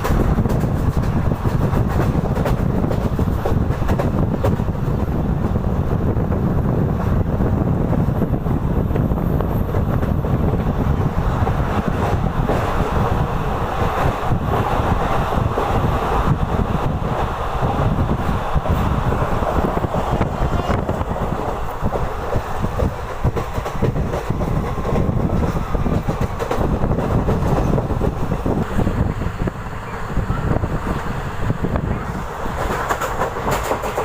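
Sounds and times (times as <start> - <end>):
train rumble: 0.0 - 34.0
train wheels clicking on track: 0.0 - 34.0
wind buffeting microphone: 0.0 - 34.0.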